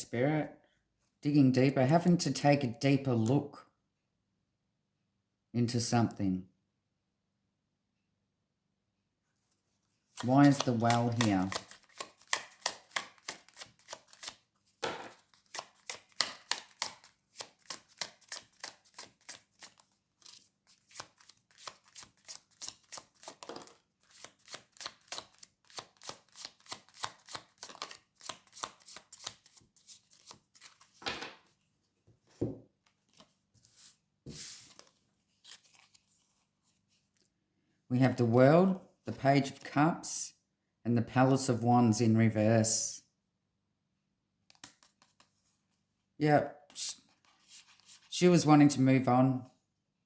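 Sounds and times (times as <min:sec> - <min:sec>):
cards shuffling clicks: 0:10.2 - 0:31.2
card swishes: 0:10.3 - 0:14.3.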